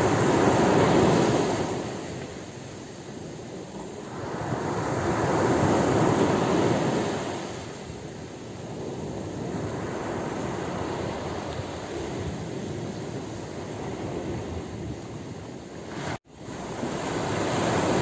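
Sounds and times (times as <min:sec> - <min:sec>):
ocean waves washing: 0:00.0 - 0:18.0.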